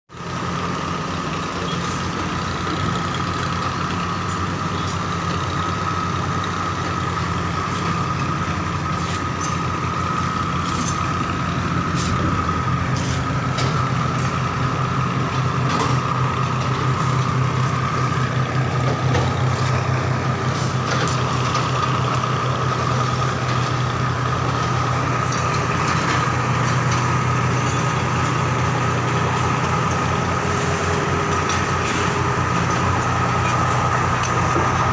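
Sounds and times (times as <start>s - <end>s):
low mechanical hum: 0.2s - 34.9s
high whine: 1.3s - 34.9s.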